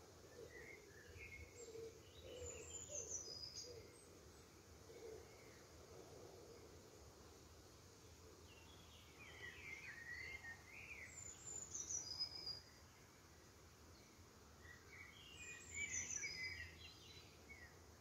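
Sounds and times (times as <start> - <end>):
low background hiss: 0.0 - 18.0
songbird singing: 0.0 - 18.0.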